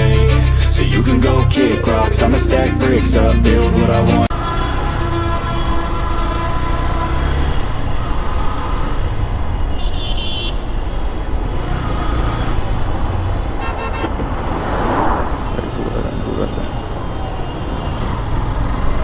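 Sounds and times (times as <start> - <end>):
rapid horn beeps: 0.0 - 8.9
road and wind rumble: 0.0 - 19.0
vehicle horn toot: 4.3 - 10.7, 13.6 - 14.2.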